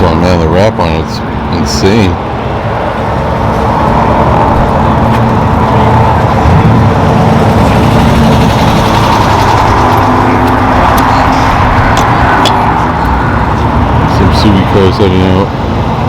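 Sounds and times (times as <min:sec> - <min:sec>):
car engines running: 0:00.0 - 0:16.0.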